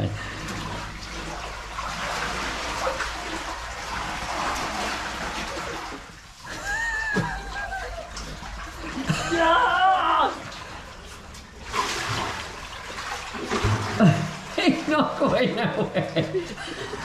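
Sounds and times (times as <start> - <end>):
person shouting: 9.2 - 10.4.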